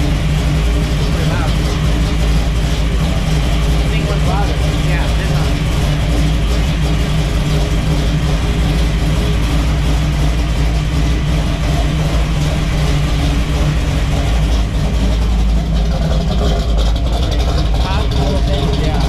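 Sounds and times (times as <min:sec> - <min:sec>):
car engine and exhaust running: 0:00.0 - 0:19.0.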